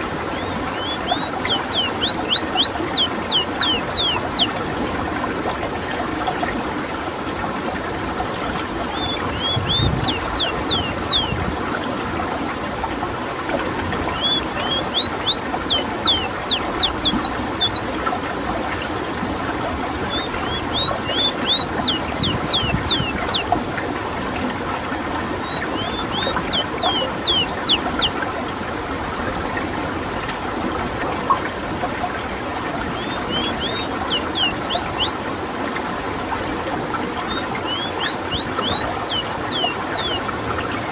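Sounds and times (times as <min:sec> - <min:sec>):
flowing water: 0:00.0 - 0:40.9
bird whistled song: 0:00.3 - 0:04.6, 0:08.9 - 0:11.4, 0:14.1 - 0:18.0, 0:20.1 - 0:23.6, 0:25.4 - 0:28.2, 0:32.9 - 0:35.2, 0:37.3 - 0:40.9.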